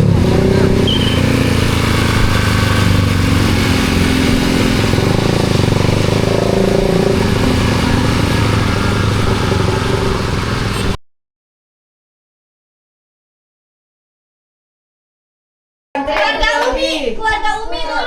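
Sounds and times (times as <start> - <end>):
motorcycle engine running steadily: 0.0 - 11.0.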